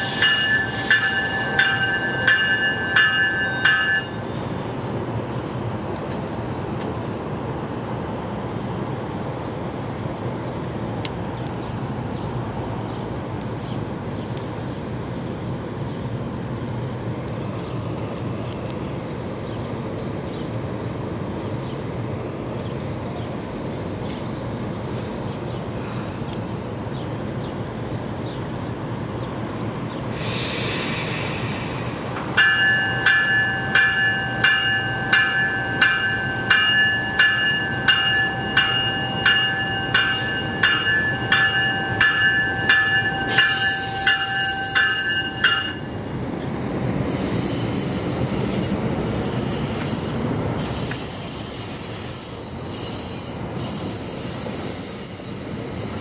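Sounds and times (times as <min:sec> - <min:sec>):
train rumbling: 0:00.0 - 0:56.0
bell clanging: 0:00.1 - 0:04.6, 0:32.4 - 0:46.0
air hiss: 0:30.1 - 0:32.4, 0:47.0 - 0:56.0.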